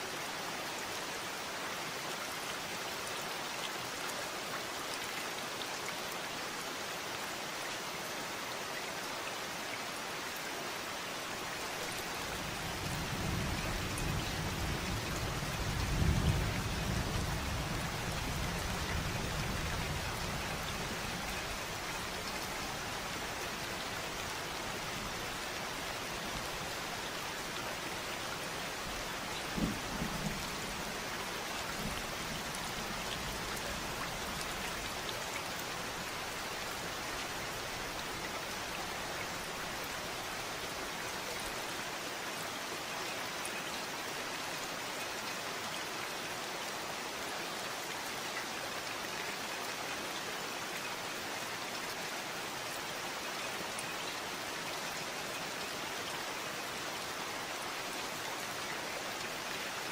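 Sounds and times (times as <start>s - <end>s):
steady rainfall hissing: 0.0s - 59.9s
distant thunder rumbling: 29.4s - 30.9s.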